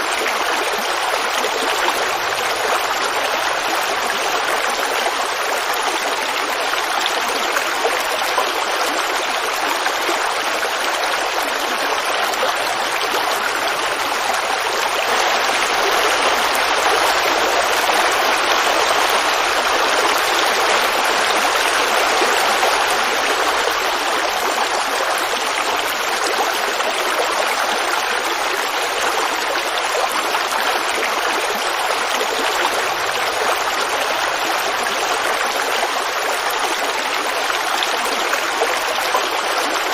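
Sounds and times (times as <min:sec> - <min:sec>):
creek babbling: 0:00.0 - 0:39.9.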